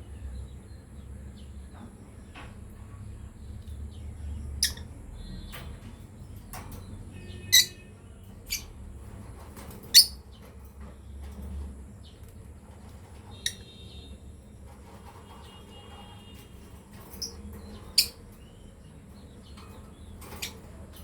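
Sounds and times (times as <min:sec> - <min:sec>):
lovebirds chirping: 0:02.9 - 0:08.8, 0:09.9 - 0:10.5, 0:17.1 - 0:21.0.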